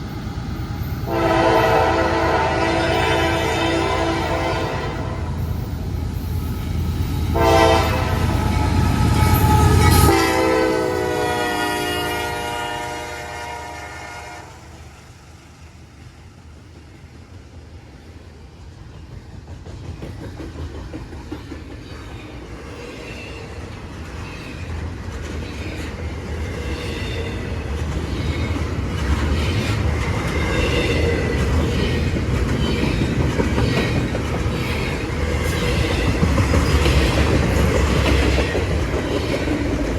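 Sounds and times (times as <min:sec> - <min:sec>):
heavy locomotive engine rumble: 0:00.0 - 0:39.9
train horn blasts: 0:01.1 - 0:05.4, 0:07.3 - 0:14.8
freight cars clickety-clack: 0:18.7 - 0:39.9.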